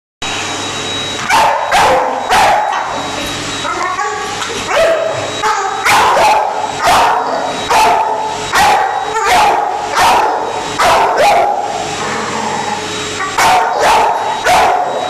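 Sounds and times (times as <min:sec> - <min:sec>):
vacuum cleaner running: 0:00.2 - 0:15.0
dog barking: 0:01.3 - 0:02.9, 0:04.7 - 0:11.7, 0:13.2 - 0:15.0.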